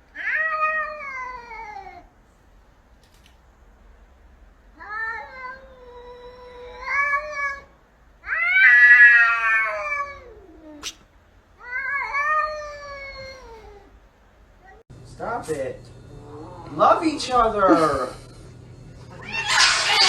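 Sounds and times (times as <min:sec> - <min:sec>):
cat yowling: 0:00.1 - 0:02.1, 0:04.8 - 0:11.0, 0:11.6 - 0:14.0, 0:19.1 - 0:20.0.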